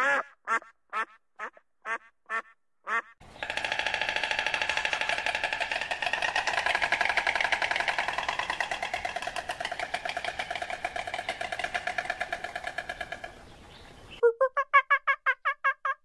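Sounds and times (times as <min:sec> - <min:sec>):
stork clattering its bill: 0:03.2 - 0:13.9.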